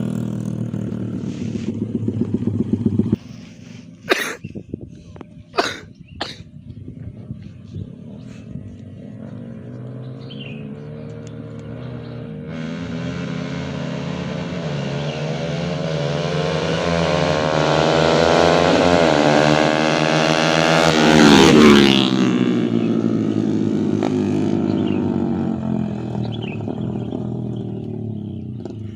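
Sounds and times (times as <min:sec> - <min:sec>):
motorcycle engines at full throttle: 0:00.0 - 0:28.9.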